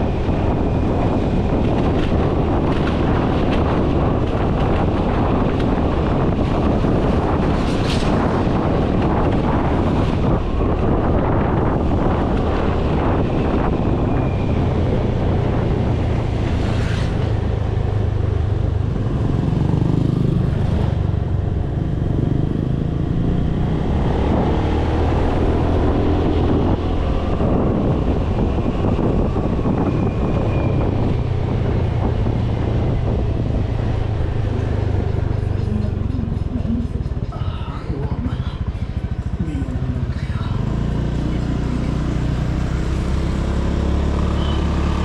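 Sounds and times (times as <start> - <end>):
road and wind rush: 0.0 - 45.0
motorcycle engine running: 32.7 - 45.0.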